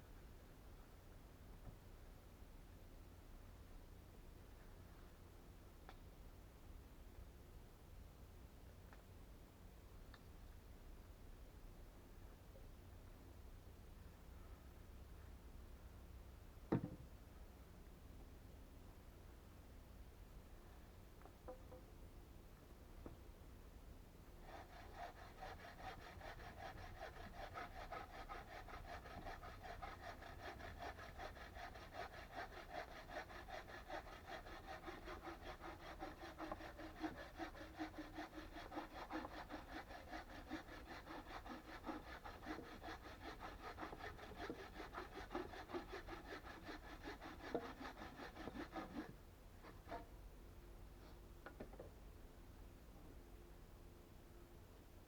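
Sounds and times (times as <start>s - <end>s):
hand saw cutting wood: 24.4s - 50.1s.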